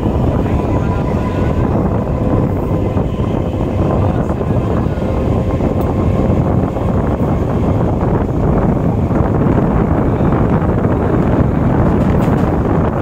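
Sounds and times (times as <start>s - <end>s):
train rumble on track: 0.0s - 13.0s
wind rushing in: 0.0s - 13.0s.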